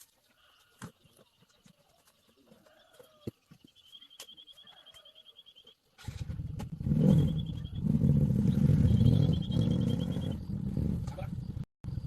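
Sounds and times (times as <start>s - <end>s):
high fast chirping trill: 8.5s - 10.6s.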